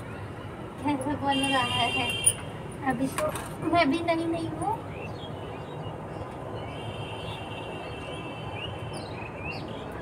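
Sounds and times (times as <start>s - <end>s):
steady background noise: 0.0s - 10.0s.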